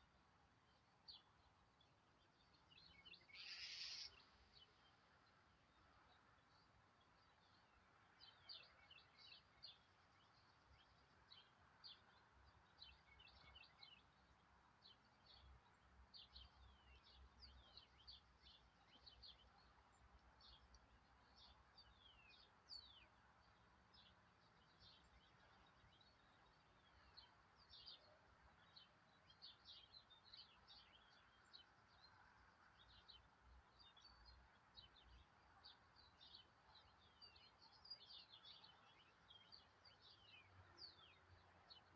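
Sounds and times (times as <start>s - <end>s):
bird chirps and twitters: 3.3s - 4.2s.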